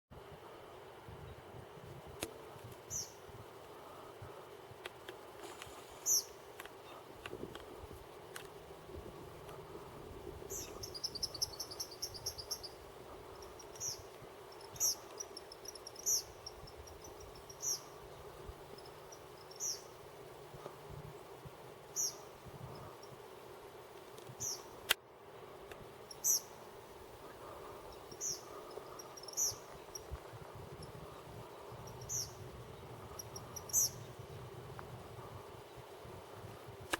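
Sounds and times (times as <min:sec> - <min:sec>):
bird calling with sharp notes: 0:10.5 - 0:12.8, 0:13.4 - 0:18.0, 0:18.8 - 0:20.0, 0:21.9 - 0:22.3, 0:26.1 - 0:26.6, 0:27.9 - 0:30.1, 0:31.8 - 0:32.4, 0:33.1 - 0:34.2.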